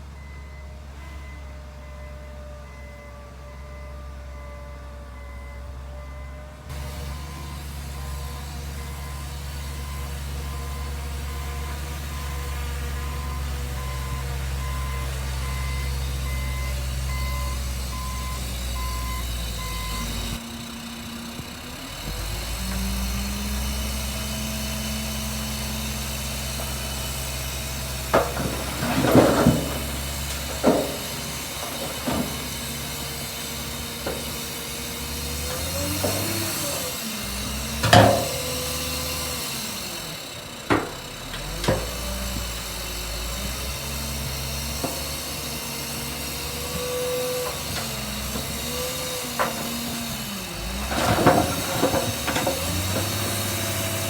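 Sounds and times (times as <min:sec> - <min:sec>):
reversing alarm beeping: 0:00.0 - 0:20.5
diesel earthmoving machinery running: 0:00.0 - 0:54.0.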